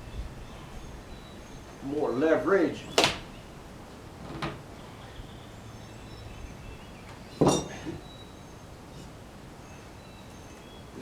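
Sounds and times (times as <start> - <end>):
metallic clank with ring: 7.4 - 7.9.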